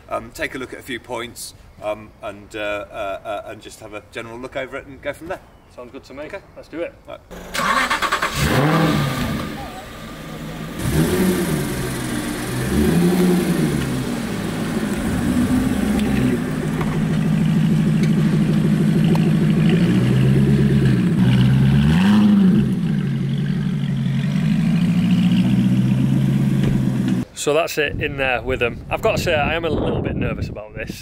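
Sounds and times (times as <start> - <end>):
car engine revving and idling: 7.3 - 27.2.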